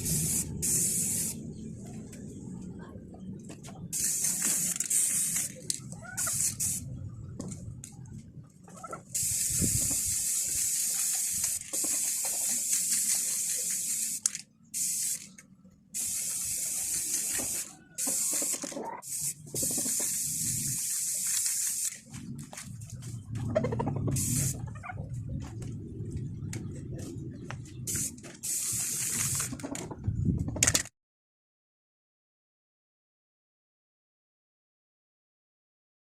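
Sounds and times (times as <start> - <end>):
spray paint hissing: 0.0 - 1.4, 3.9 - 7.0, 9.1 - 15.4, 16.0 - 22.1, 24.0 - 24.7, 27.9 - 29.6.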